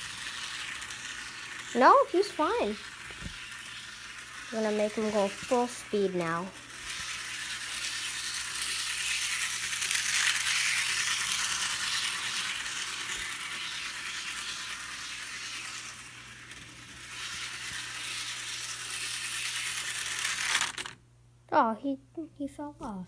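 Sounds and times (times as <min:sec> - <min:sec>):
model train rattling on rails: 0:00.0 - 0:21.0.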